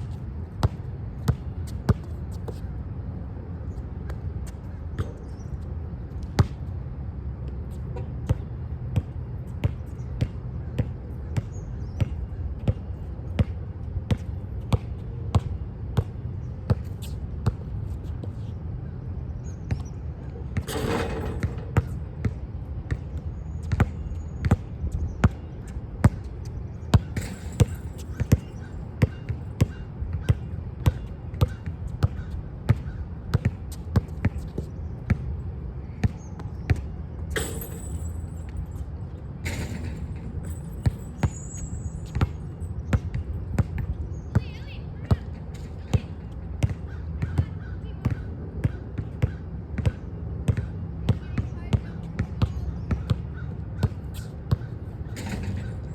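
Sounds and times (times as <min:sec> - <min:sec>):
basketball bouncing on hard court: 0:20.6 - 0:23.0, 0:26.9 - 0:35.3, 0:37.4 - 0:38.8, 0:39.4 - 0:44.4, 0:45.1 - 0:51.2, 0:51.8 - 0:55.9.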